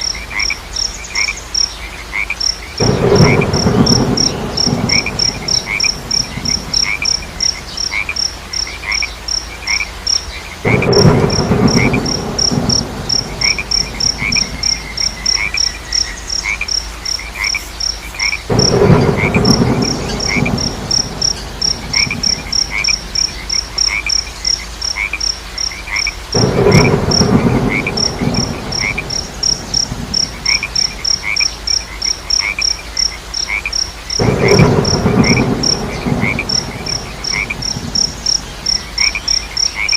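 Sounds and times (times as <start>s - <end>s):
low chirping calls: 0.0s - 25.0s
crickets chirping: 0.0s - 39.9s
frog croaking: 0.0s - 39.9s.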